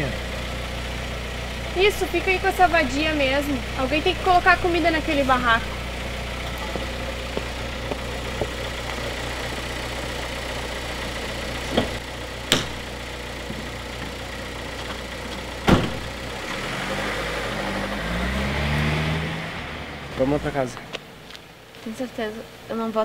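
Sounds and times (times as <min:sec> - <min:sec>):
car engine idling: 0:00.0 - 0:23.0
sharp knocks: 0:11.7 - 0:12.9.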